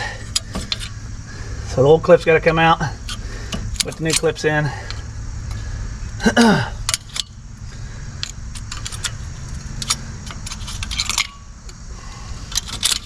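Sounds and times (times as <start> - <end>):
steady low hum: 0.0 - 13.0
metal clips clicking and clinking: 6.9 - 7.3, 8.2 - 11.8, 12.5 - 13.0
rattling clinks: 8.2 - 11.6.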